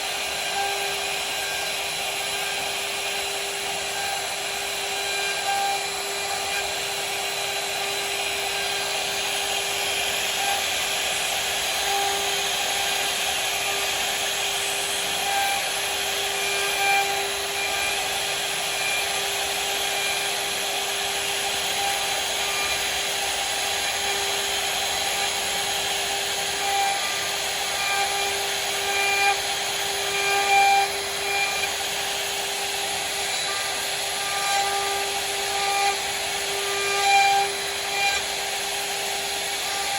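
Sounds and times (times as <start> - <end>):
router bit cutting wood: 0.0 - 39.9
router spindle whine: 0.0 - 39.9.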